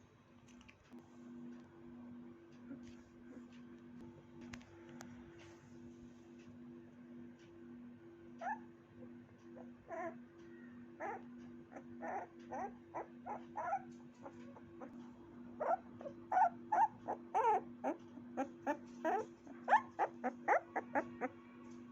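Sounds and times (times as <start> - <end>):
puppy whimpering and yipping: 8.4 - 8.7, 9.5 - 10.2, 11.0 - 15.0, 15.6 - 21.4.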